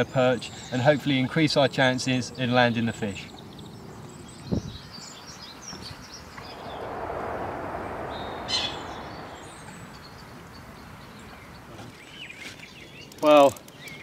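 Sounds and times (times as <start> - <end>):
broad rush of noise: 6.4 - 10.5.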